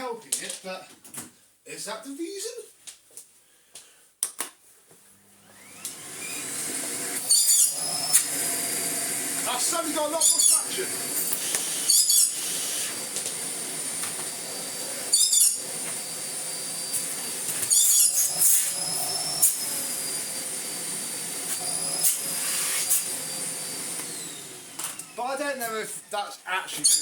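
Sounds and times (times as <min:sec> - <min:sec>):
vacuum cleaner motor whine: 0:05.3 - 0:26.2.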